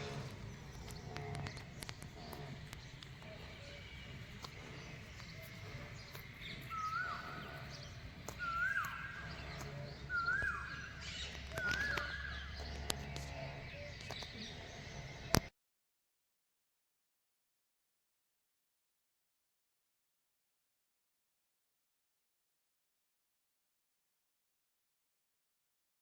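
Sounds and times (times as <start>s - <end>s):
faint bird chirps: 0.0s - 15.5s
bird call with upward sweep: 6.1s - 12.6s.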